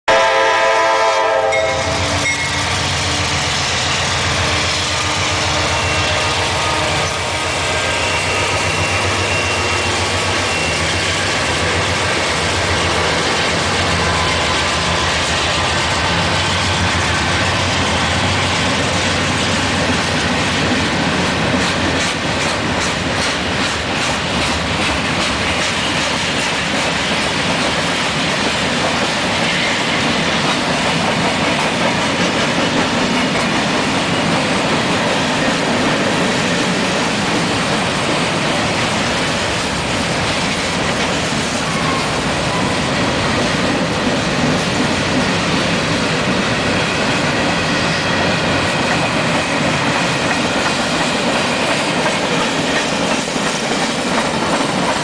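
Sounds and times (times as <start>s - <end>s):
locomotive air horn: 0.1s - 12.0s
wheels clacking over rails: 8.2s - 55.0s.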